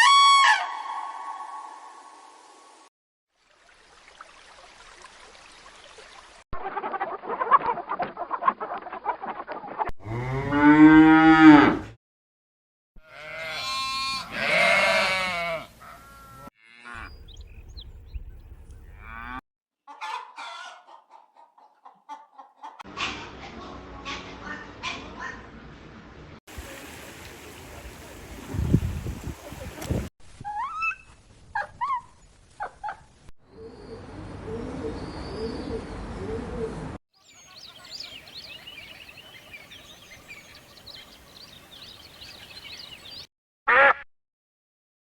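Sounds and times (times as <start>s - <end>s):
long rising and falling call: 0.0s - 2.7s
farm animal calls: 13.1s - 17.8s, 37.3s - 44.0s.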